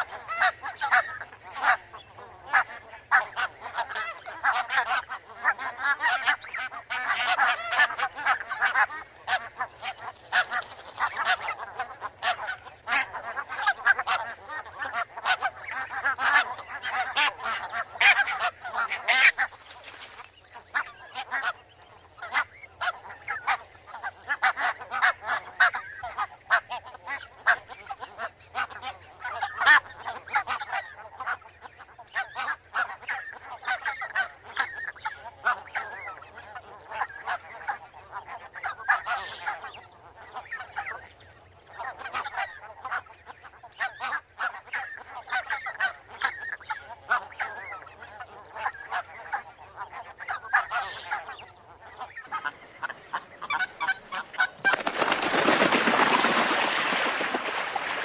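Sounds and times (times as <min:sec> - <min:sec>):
geese honking: 0:00.0 - 0:58.0.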